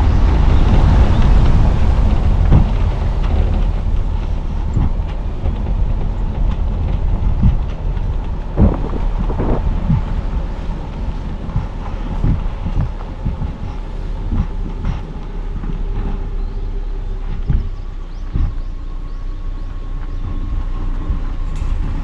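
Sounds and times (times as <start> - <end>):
tyre and road noise: 0.0 - 22.0
wind: 0.0 - 22.0
knocks from road bumps: 2.4 - 16.1, 17.3 - 18.7.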